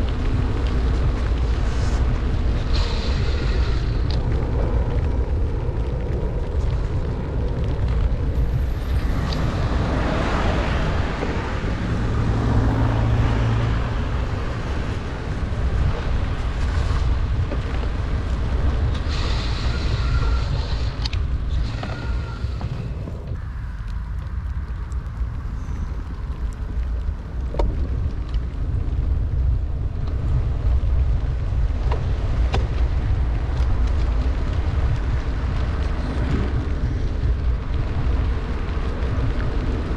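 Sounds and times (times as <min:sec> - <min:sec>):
low hum: 0:00.0 - 0:39.9
rain and wet road hiss: 0:00.0 - 0:39.9
wind rumbling on microphone: 0:00.0 - 0:39.9.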